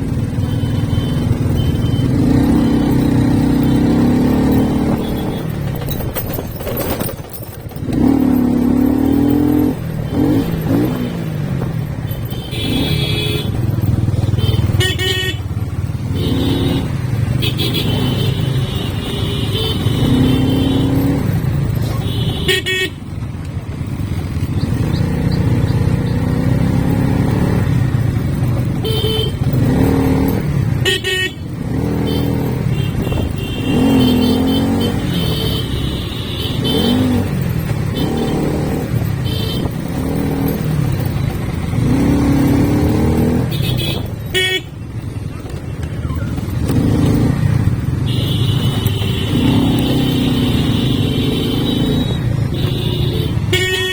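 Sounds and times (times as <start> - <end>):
motorcycle engine running: 0.0 - 53.9
vehicle horns honking: 0.2 - 6.0, 8.8 - 11.0, 12.0 - 23.3, 28.6 - 45.0, 47.9 - 53.9.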